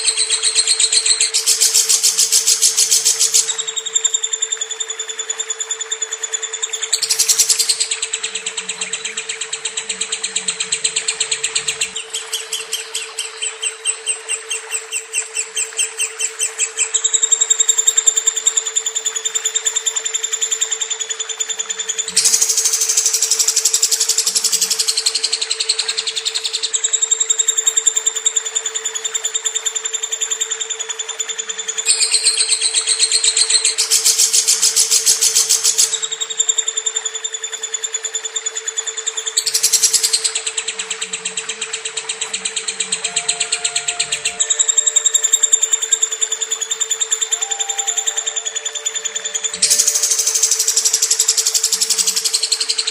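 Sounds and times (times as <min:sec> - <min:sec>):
lovebird chattering trill: 0:00.0 - 0:04.4, 0:06.1 - 0:18.5, 0:21.8 - 0:28.3, 0:31.4 - 0:37.9, 0:38.6 - 0:52.9
steady low hum: 0:06.2 - 0:21.0
lovebird chirping rapidly: 0:06.8 - 0:16.9, 0:42.1 - 0:52.9.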